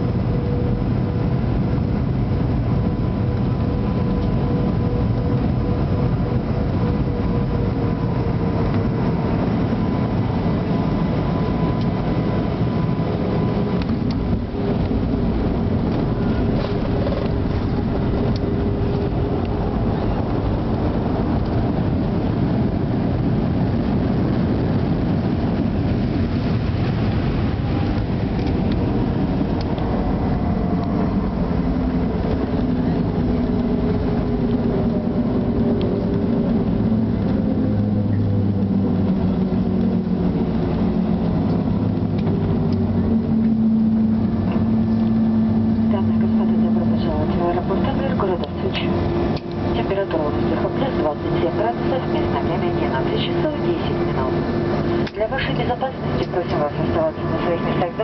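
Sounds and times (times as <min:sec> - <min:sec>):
faint engine whine: 0:00.0 - 0:58.0
jet engines rumbling: 0:00.0 - 0:58.0
rushing air: 0:07.8 - 0:46.6.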